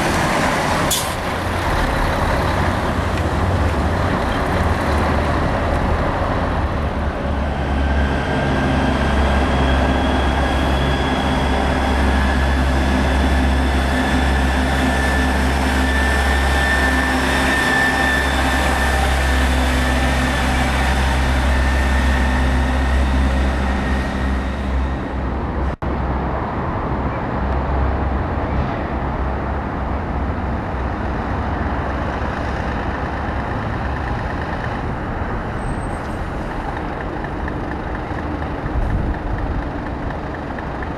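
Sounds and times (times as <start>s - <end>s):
diesel truck engine running: 31.8s - 40.9s.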